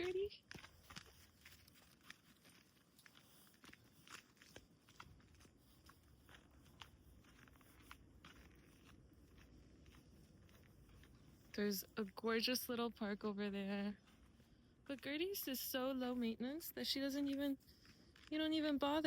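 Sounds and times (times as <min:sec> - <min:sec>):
footsteps crunching in snow: 0:00.0 - 0:12.3.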